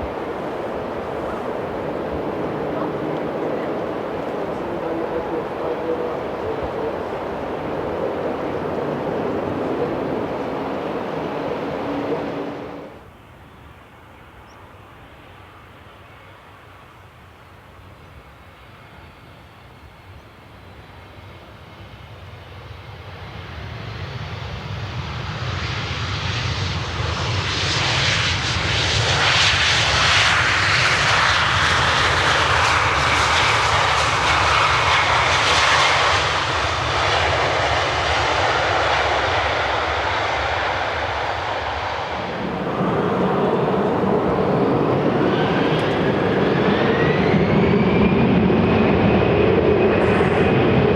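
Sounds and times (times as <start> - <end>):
engine whine: 0.0 - 13.1, 26.9 - 50.9
jet airliner engines: 0.0 - 50.9.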